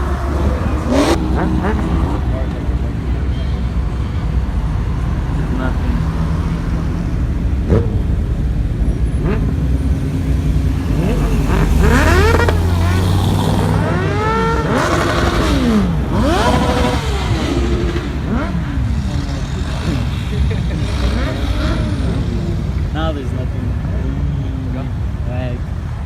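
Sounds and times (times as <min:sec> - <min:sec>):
car engine revving: 0:00.0 - 0:25.6.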